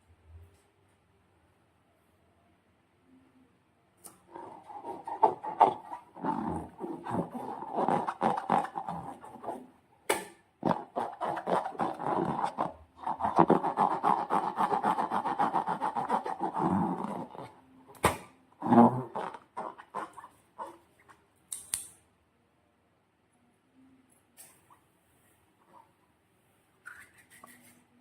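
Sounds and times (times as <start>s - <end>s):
slime and balloons squelching: 4.3s - 9.7s, 10.6s - 21.1s
sharp snap: 21.5s - 22.0s.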